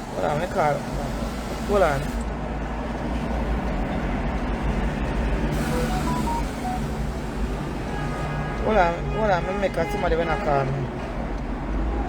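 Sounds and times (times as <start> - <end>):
vehicle engine rumbling: 2.3 - 8.4
short beeps: 5.6 - 7.1.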